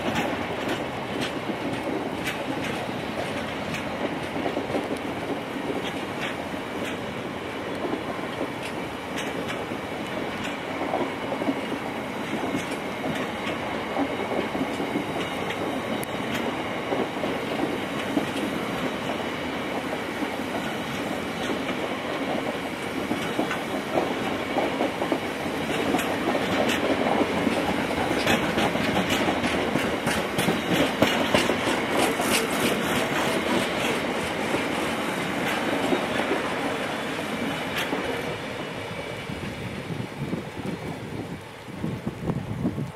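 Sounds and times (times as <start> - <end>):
train wheels clattering over rails: 0.0 - 42.9.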